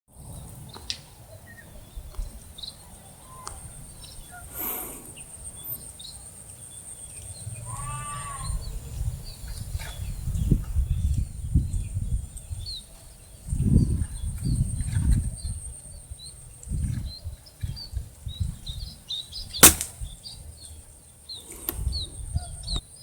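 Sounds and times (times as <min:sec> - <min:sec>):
small birds chirping: 0:00.4 - 0:14.6, 0:15.4 - 0:23.0.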